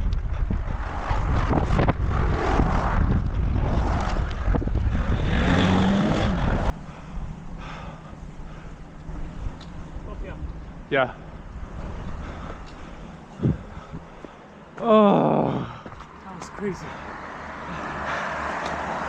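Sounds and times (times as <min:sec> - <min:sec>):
wind rumbling on microphone: 0:00.0 - 0:14.4
road traffic noise: 0:00.0 - 0:19.0
motor vehicle passing close: 0:00.4 - 0:07.6, 0:17.0 - 0:19.0.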